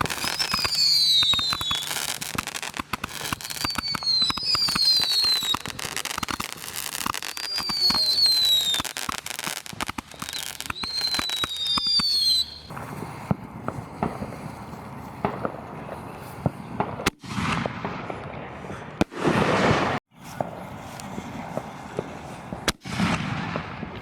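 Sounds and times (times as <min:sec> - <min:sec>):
firework whistles falling in pitch: 0:00.0 - 0:02.6, 0:03.3 - 0:12.7
firework bangs and pops: 0:00.0 - 0:24.0
firework crackling: 0:00.0 - 0:24.0.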